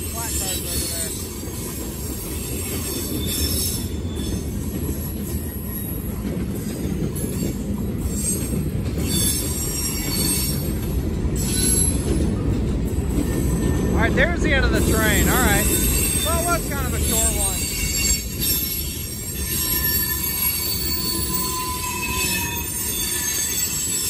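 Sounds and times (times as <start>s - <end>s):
steel wheels rumbling on rail: 0.0s - 24.0s
high-pitched wheel squeal: 2.4s - 4.6s, 8.1s - 10.7s, 11.4s - 12.1s, 14.9s - 24.0s.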